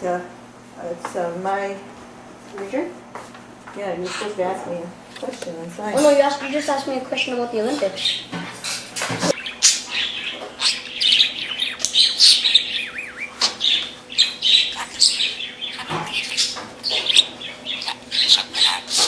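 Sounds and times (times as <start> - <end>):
parrot chirping and squawking: 4.0 - 4.5, 6.0 - 6.9, 7.8 - 19.0
parrot warble: 8.0 - 19.0.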